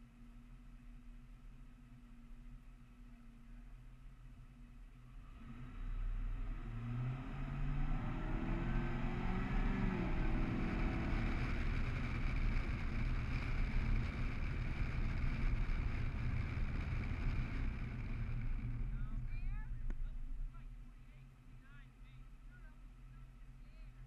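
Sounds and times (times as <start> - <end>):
wind and road noise: 0.0 - 24.0
car engine accelerating: 5.0 - 24.0.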